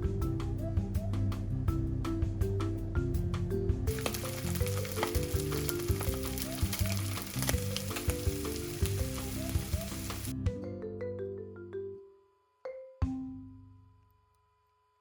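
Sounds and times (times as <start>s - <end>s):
marimba background music: 0.0s - 13.7s
food sizzling in a frying pan: 3.9s - 10.3s.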